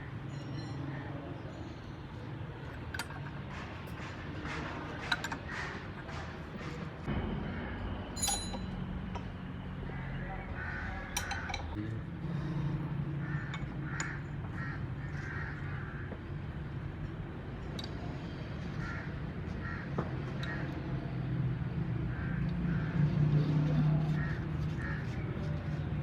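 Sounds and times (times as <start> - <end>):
metal tools clinking: 8.2 - 8.9
sharp metallic ring: 8.2 - 9.0.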